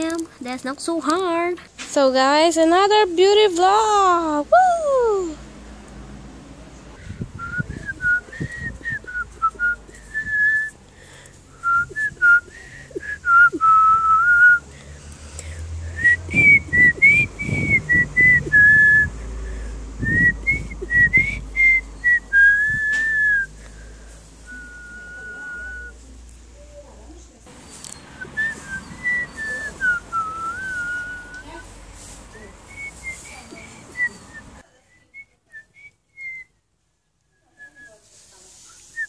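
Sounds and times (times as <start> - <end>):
person whistling a tune: 7.4 - 10.8, 11.6 - 14.7, 15.9 - 19.2, 20.0 - 23.6, 24.4 - 26.0, 28.2 - 31.5, 32.7 - 36.6.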